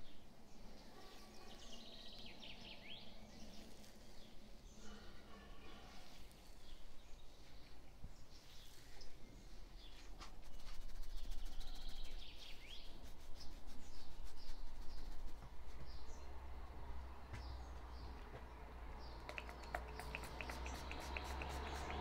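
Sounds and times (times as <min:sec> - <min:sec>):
small birds chirping: 0:00.0 - 0:22.0
light taps and rustling: 0:17.3 - 0:18.6.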